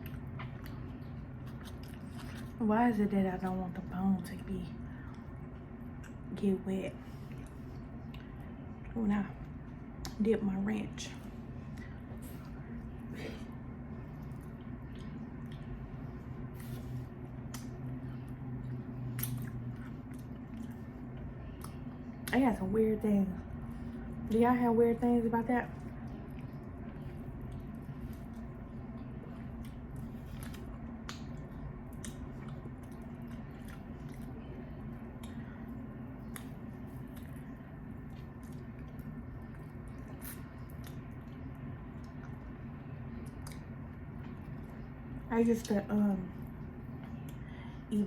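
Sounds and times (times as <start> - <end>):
person chewing and biting: 0.0 - 2.6, 19.1 - 21.8, 26.2 - 34.5
wet chewing: 0.0 - 3.6, 11.2 - 22.4, 25.6 - 45.0
steady low hum: 0.0 - 48.0.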